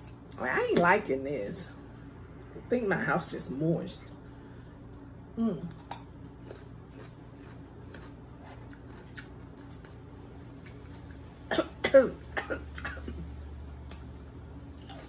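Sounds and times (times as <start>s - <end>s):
woman coughing: 11.5s - 13.3s.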